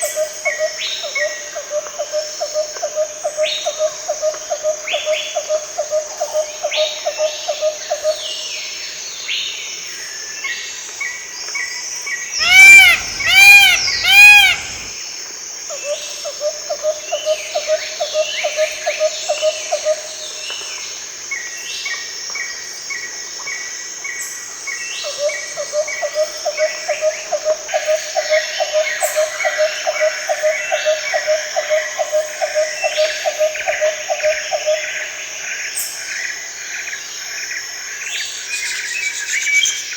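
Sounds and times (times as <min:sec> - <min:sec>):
birds chirping and calling: 0:12.4 - 0:14.9
insect drone: 0:12.4 - 0:14.9
loud arching calls: 0:12.4 - 0:14.9
low repeating call: 0:12.4 - 0:14.9.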